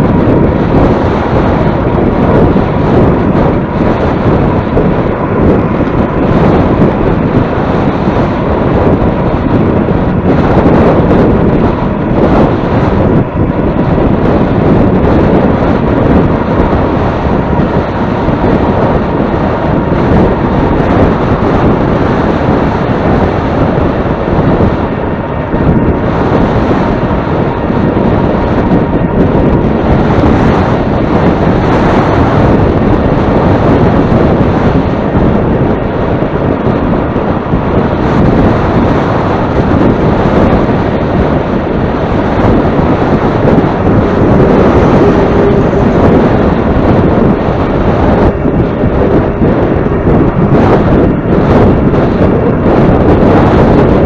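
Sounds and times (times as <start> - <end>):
wind buffeting microphone: 0.0 - 54.0
faint high tone: 44.1 - 46.3.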